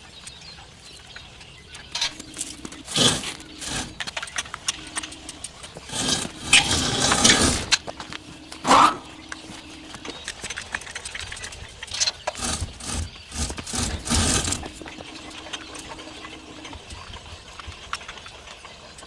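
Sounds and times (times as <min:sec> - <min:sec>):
pen scraping across concrete: 0:02.0 - 0:09.6, 0:12.3 - 0:16.0.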